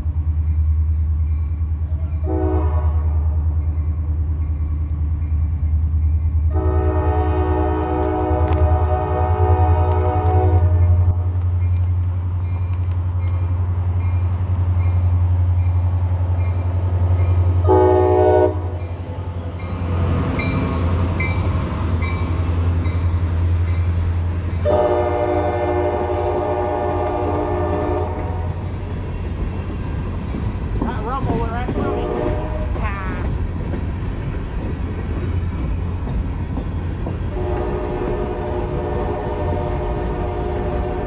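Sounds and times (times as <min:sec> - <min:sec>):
train horn blasts: 0:02.2 - 0:03.4, 0:06.5 - 0:11.3, 0:17.6 - 0:18.8, 0:24.6 - 0:28.6, 0:31.7 - 0:33.2, 0:37.3 - 0:41.0
wheels clicking over rail joints: 0:26.1 - 0:41.0.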